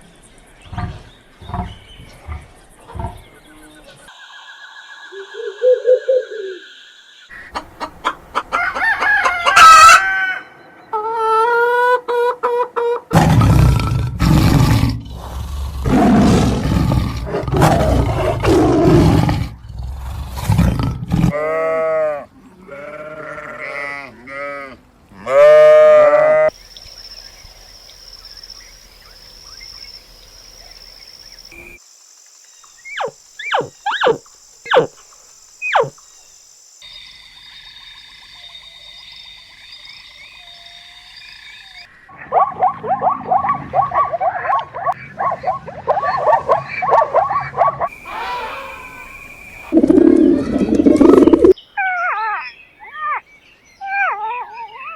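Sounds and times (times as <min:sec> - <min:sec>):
animal calls: 0:32.9 - 0:35.0, 0:35.6 - 0:36.0, 0:42.1 - 0:54.9
short falling chirps: 0:35.6 - 0:35.9, 0:48.1 - 0:51.6.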